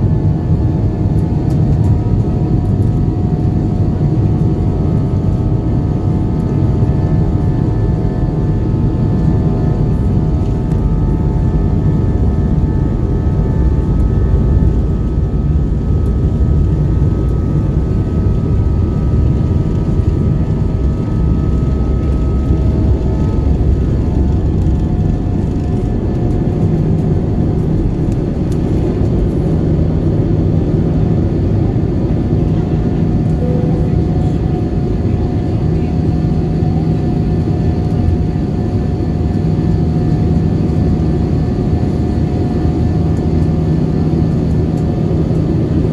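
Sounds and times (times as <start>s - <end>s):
jet engine and airflow rumble: 0.0s - 45.9s
steady whining tones: 7.2s - 31.9s.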